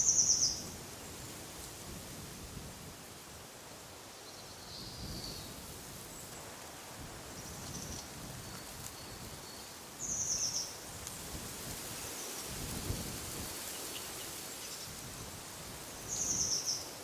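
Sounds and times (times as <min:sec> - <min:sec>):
wind rustling through trees: 0:00.0 - 0:17.0
songbirds calling: 0:07.4 - 0:10.8.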